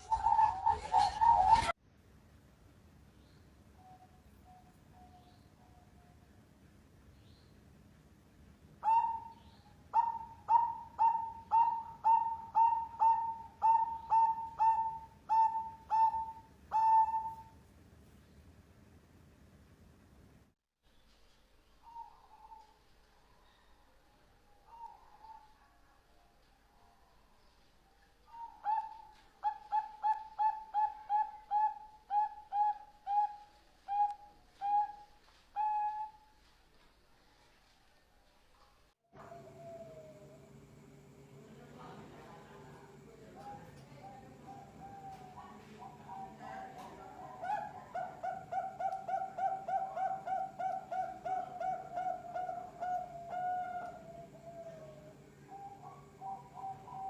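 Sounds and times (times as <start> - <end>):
dove cooing: 0.0 - 1.8, 8.8 - 17.5, 28.3 - 36.2, 39.2 - 40.6, 43.4 - 57.0.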